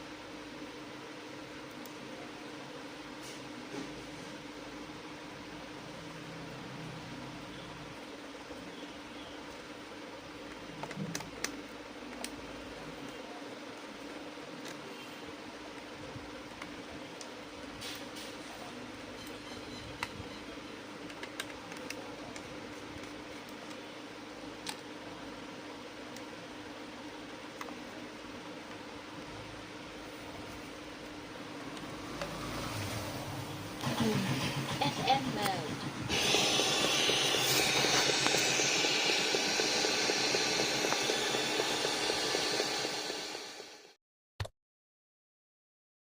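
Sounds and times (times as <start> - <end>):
steady hum and hiss: 0.0 - 44.0
hot air gun hissing: 33.8 - 44.0.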